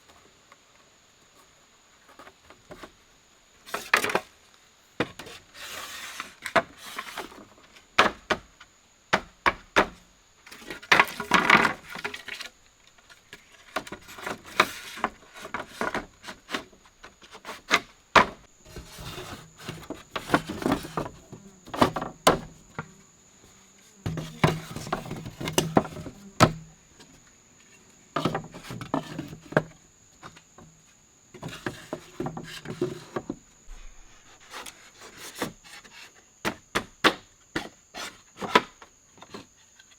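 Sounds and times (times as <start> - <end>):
wood scraping and rubbing: 10.5 - 22.9.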